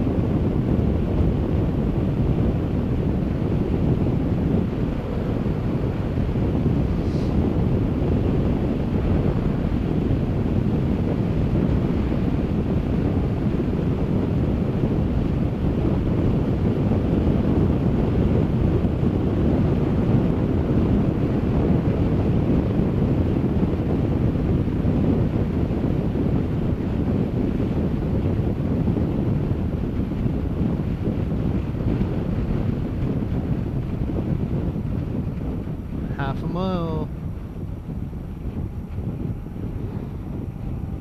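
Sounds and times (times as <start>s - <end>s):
wind rushing over microphone: 0.0s - 41.0s.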